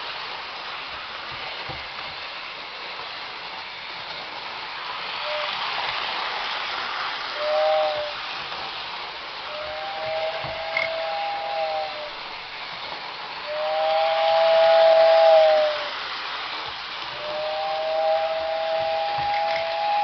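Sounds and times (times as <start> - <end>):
steady hiss: 0.0 - 20.0
two-note toy train whistle: 5.2 - 5.7, 7.3 - 8.3, 9.5 - 12.3, 13.4 - 16.0, 17.1 - 20.0.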